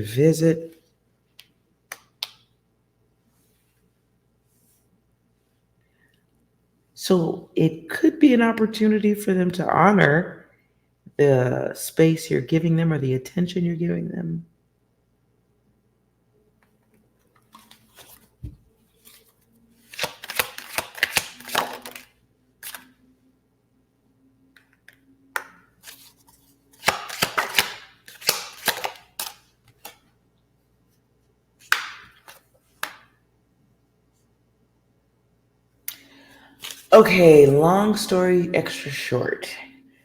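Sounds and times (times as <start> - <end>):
cards being shuffled: 17.2 - 23.0, 24.6 - 30.1, 31.6 - 33.1, 36.6 - 37.6.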